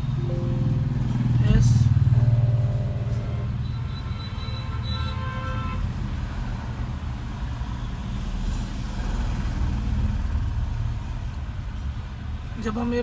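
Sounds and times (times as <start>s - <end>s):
diesel engine idling: 0.0s - 4.1s.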